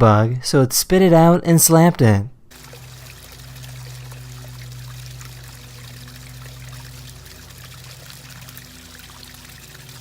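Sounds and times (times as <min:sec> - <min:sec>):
low electrical hum: 0:01.8 - 0:10.0
water trickling: 0:02.5 - 0:10.0.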